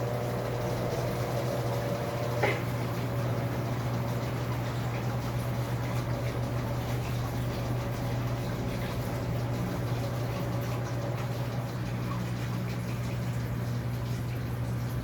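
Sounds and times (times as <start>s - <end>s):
washing machine low hum: 0.0s - 15.0s
water sloshing in washing machine: 0.0s - 15.0s
drips and ticks: 2.2s - 15.0s.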